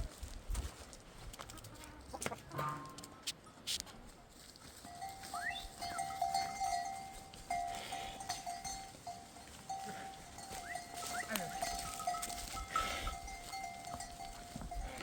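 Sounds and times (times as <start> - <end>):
sheep bells ringing: 4.3 - 15.0.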